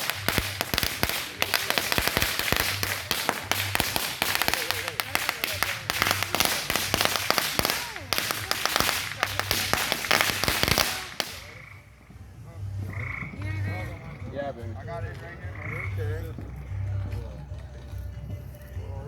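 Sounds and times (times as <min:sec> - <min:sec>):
firecrackers crackling: 0:00.0 - 0:14.1
faint voices: 0:00.0 - 0:19.0.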